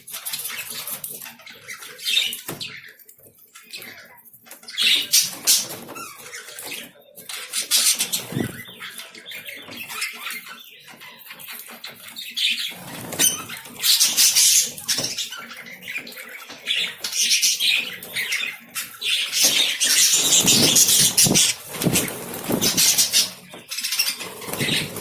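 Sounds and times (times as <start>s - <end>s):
high scratchy bird calls: 0.0s - 25.0s
wings flapping: 7.9s - 8.6s, 19.3s - 25.0s.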